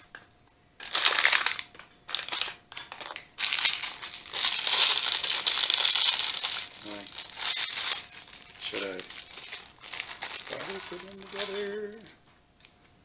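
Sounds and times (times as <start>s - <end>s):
plastic packet crinkling: 0.8s - 12.2s.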